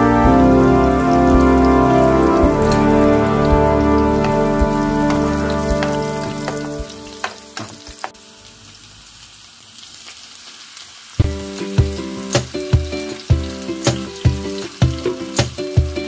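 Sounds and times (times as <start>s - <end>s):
background music with steady beat: 0.0s - 8.2s, 11.2s - 16.0s
onions sizzling in oil: 0.0s - 16.0s.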